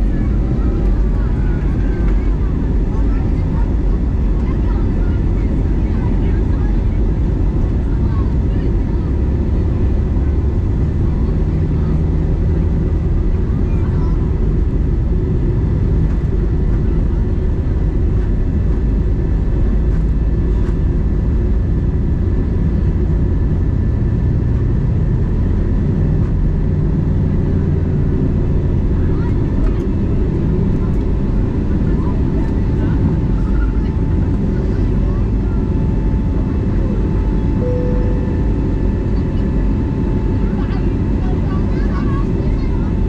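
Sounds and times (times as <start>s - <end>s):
aircraft cabin engine drone: 0.0s - 43.0s.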